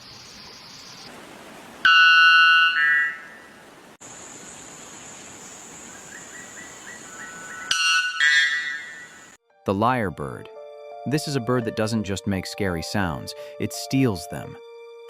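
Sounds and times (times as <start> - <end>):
background hiss: 3.2 - 9.4
bellbird ringing call: 7.6 - 9.2.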